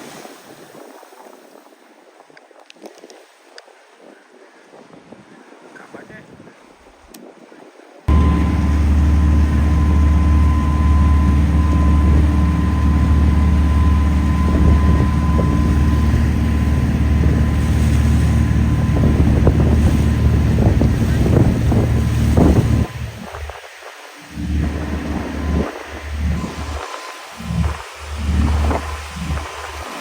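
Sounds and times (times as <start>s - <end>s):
boat engine droning: 8.1s - 30.0s
wind buffeting microphone: 8.1s - 30.0s.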